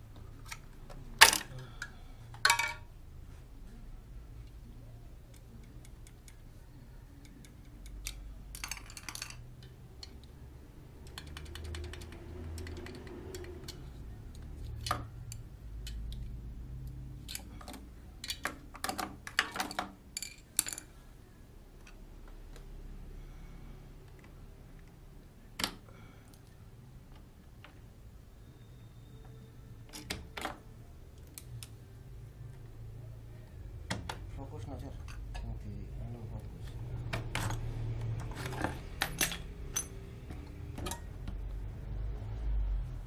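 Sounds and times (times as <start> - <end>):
hand tools clicking and tapping: 7.2 - 10.4, 11.0 - 20.9, 37.1 - 41.6.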